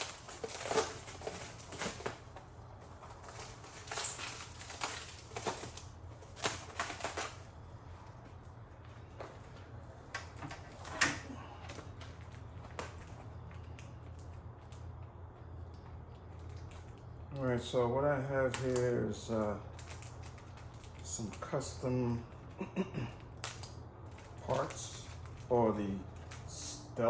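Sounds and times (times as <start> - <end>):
packaging rustling and clicking: 0.0 - 7.5
faint low hum: 0.0 - 27.0.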